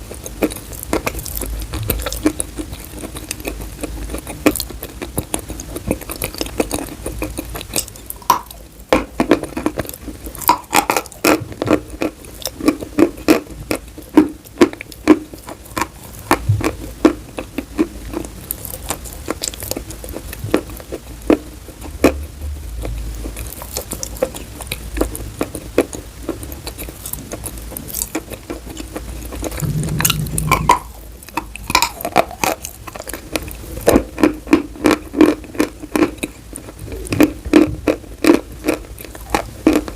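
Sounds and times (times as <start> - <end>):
chalk being chewed: 0.0 - 22.2.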